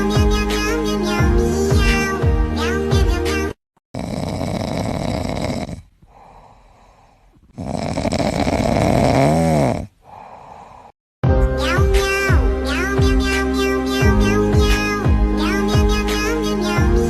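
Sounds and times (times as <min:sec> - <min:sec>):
loud rasping snoring: 0:03.9 - 0:11.0.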